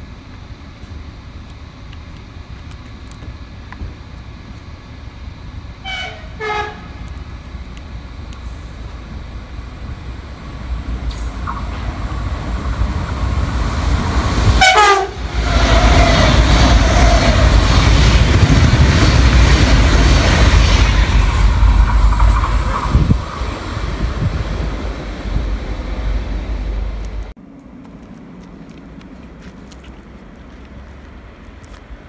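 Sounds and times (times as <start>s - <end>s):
rush of train passing: 3.8s - 32.0s
train horn blast: 5.8s - 7.2s, 14.5s - 16.2s.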